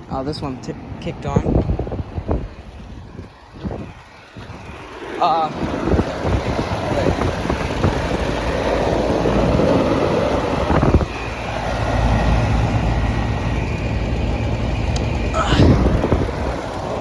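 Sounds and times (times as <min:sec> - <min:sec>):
air conditioning units running: 0:00.0 - 0:17.0
wind buffeting microphone: 0:00.0 - 0:17.0.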